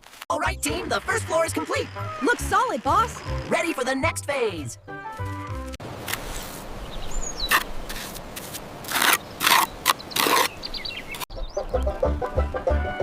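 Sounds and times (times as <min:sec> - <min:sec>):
high bird chirps: 0:06.9 - 0:07.6, 0:09.6 - 0:11.7
plucked banjo music: 0:11.3 - 0:13.0.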